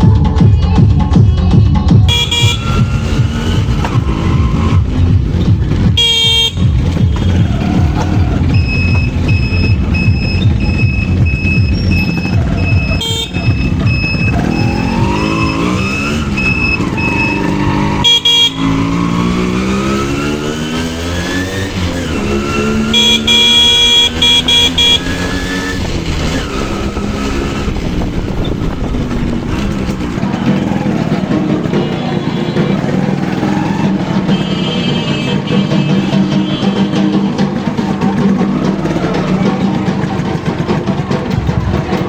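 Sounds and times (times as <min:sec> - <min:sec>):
motorcycle engine accelerating: 0:00.0 - 0:42.0
vehicle horn honking: 0:02.1 - 0:03.8, 0:05.7 - 0:27.3, 0:30.3 - 0:33.4, 0:34.1 - 0:37.6.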